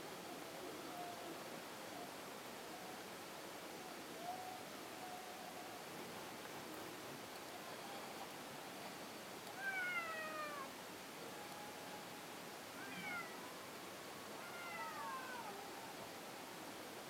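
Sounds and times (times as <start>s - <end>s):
cat meowing: 9.6s - 10.7s, 12.8s - 13.4s, 14.4s - 15.6s.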